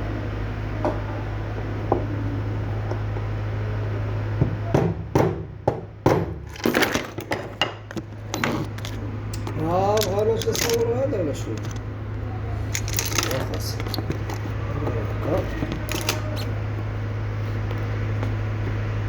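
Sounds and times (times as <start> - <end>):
clicks and knocks of small parts: 6.5 - 11.9, 12.6 - 14.6, 15.4 - 16.5.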